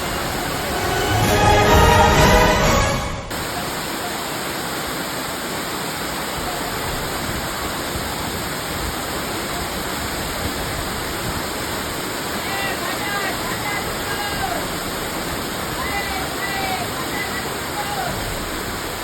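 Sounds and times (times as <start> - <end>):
background music: 0.0 - 3.3
waterfall roaring: 0.0 - 19.0.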